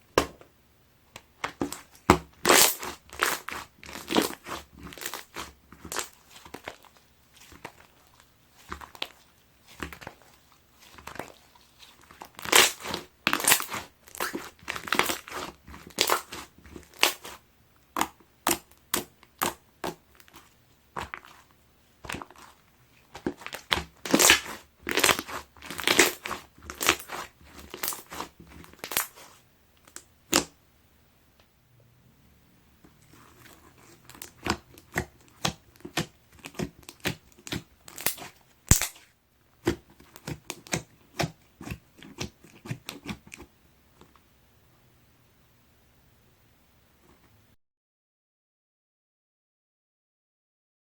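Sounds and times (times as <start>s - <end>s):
slime squeezed with sticky pops: 1.5s - 6.8s, 12.1s - 21.4s, 23.1s - 30.5s, 33.9s - 43.4s.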